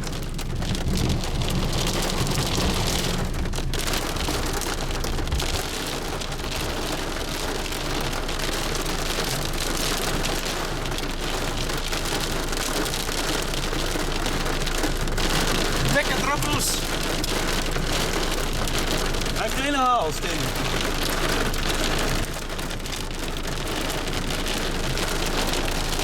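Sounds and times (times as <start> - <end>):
heavy rain and hail falling: 0.0 - 26.0.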